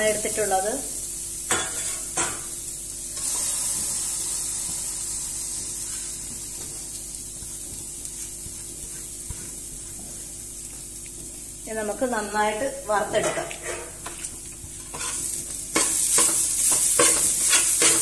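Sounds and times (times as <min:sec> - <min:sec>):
coconut sizzling in oil: 0:00.0 - 0:18.0.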